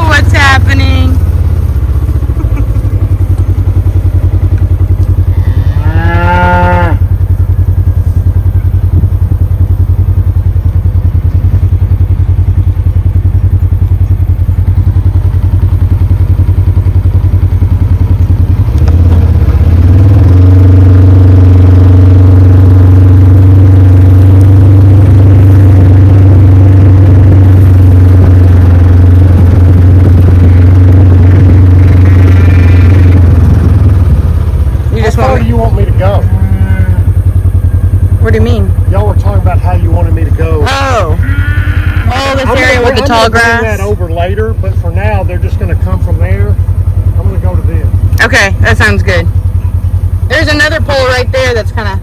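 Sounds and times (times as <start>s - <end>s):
vehicle engine chugging: 0.0s - 52.0s
cow mooing: 4.5s - 7.4s, 25.8s - 37.2s, 40.6s - 43.8s.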